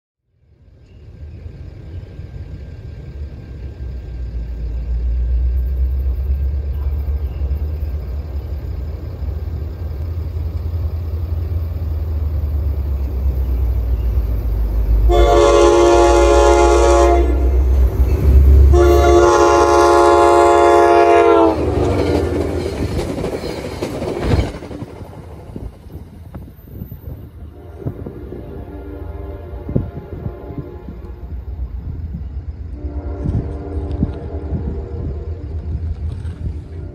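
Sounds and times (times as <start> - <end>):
train rumble: 0.4 - 36.9
train horn blasts: 14.8 - 22.6, 27.4 - 31.6, 32.6 - 35.7, 36.6 - 36.9.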